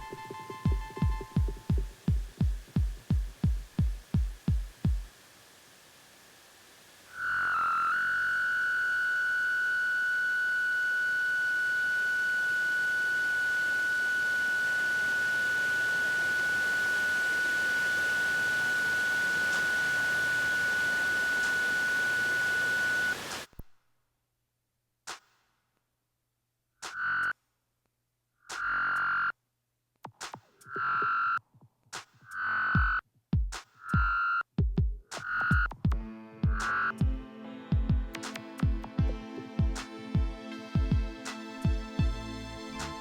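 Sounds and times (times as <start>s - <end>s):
heart monitor flatline tone: 0.0s - 5.1s, 35.4s - 42.2s
electronic heartbeat thumps: 0.0s - 5.2s, 32.8s - 42.9s.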